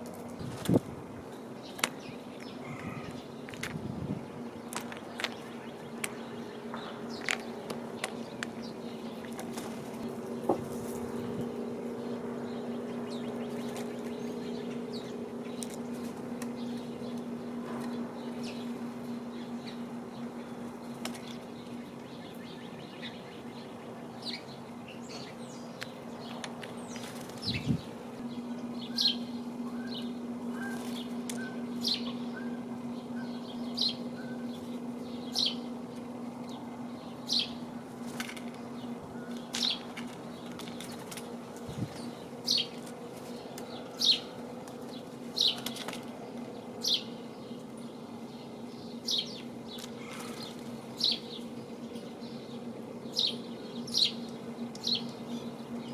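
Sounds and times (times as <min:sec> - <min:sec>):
steady low hum: 0:00.0 - 0:55.9
small birds chirping: 0:00.1 - 0:55.9.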